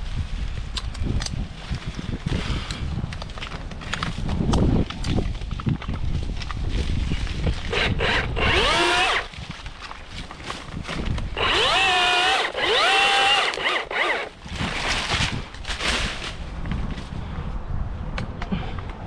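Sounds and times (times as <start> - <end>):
electric chainsaw revving: 7.7 - 9.3, 11.4 - 14.4.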